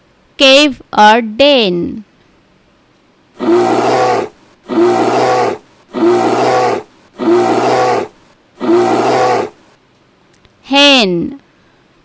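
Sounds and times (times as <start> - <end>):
bear growling roar: 3.4 - 9.8.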